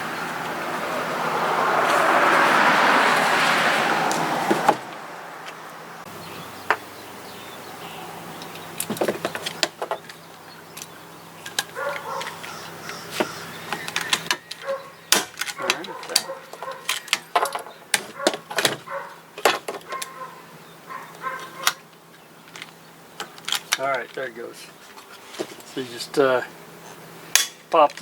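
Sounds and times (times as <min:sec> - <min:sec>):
loud rushing noise: 0:00.0 - 0:06.1.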